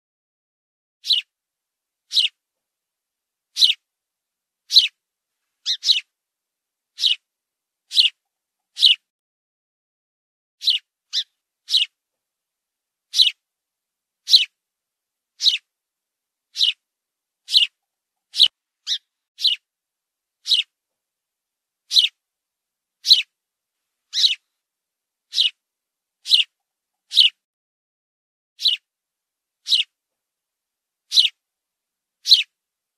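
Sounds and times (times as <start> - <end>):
fledgling bird chirping: 1.0 - 1.3, 2.1 - 2.4, 3.5 - 3.8, 4.7 - 5.0, 5.6 - 6.1, 7.0 - 7.3, 7.9 - 9.0, 10.6 - 12.0, 13.1 - 13.4, 14.2 - 14.6, 15.4 - 15.7, 16.5 - 16.8, 17.4 - 19.6, 20.4 - 20.7, 21.9 - 22.2, 23.0 - 23.4, 24.1 - 24.5, 25.3 - 25.6, 26.2 - 27.4, 28.6 - 28.8, 29.6 - 30.0, 31.1 - 31.4, 32.2 - 32.6.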